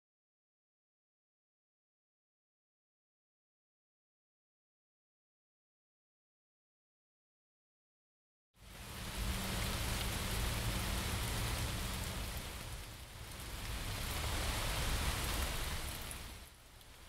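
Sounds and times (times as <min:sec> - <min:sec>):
rain hiss: 0:08.6 - 0:17.0.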